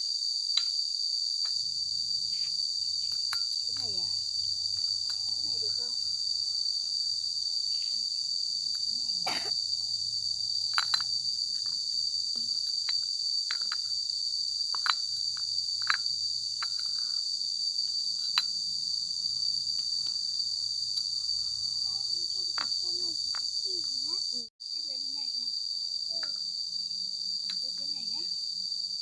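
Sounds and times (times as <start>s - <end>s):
high-pitched insect chorus: 0.0s - 29.0s
glass bottles clinking: 10.6s - 11.1s.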